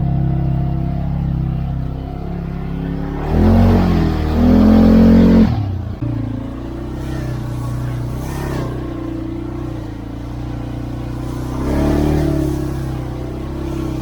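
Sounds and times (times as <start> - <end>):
atv engine accelerating: 0.0 - 14.0.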